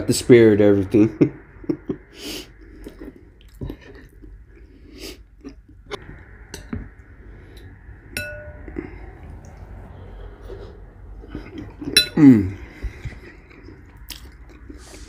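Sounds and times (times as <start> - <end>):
chewing and mouth sounds: 2.6 - 5.8, 10.3 - 15.0
spoon clinking against bowl: 8.2 - 8.8, 12.0 - 12.2.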